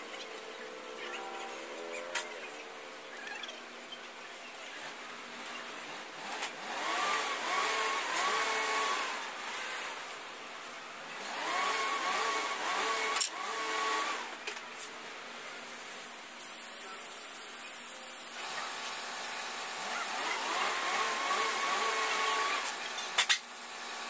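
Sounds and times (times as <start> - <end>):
power tool motor spinning up: 6.2 - 9.6, 11.3 - 14.3, 18.4 - 22.8.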